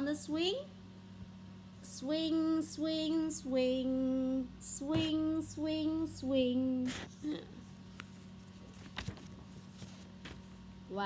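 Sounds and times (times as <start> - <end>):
woman singing slow tune: 0.0 - 0.8, 1.8 - 7.6
faint steady hum: 0.0 - 11.0.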